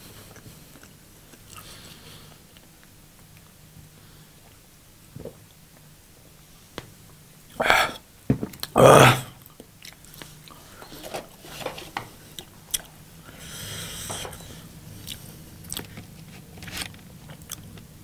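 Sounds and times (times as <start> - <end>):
person chewing food: 0.1 - 3.6, 12.4 - 13.0, 13.6 - 17.9.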